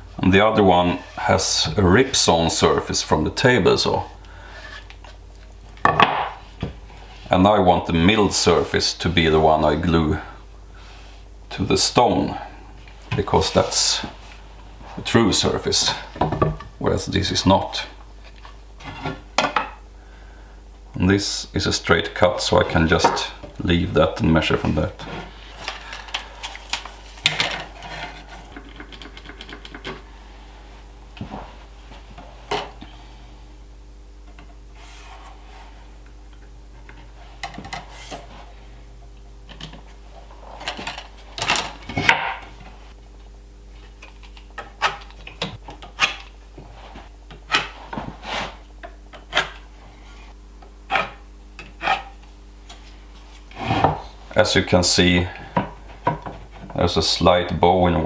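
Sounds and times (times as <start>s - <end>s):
faint steady hum: 0.0s - 58.0s
wood and tools knocking: 5.8s - 6.8s, 16.2s - 16.7s
rubbing and scraping: 13.2s - 16.0s, 26.5s - 28.6s, 49.4s - 52.2s.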